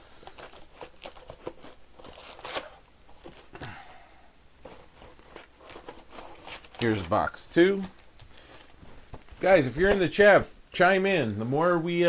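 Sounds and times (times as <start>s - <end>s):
packaging rustling and tearing: 0.0s - 3.6s, 4.6s - 10.0s.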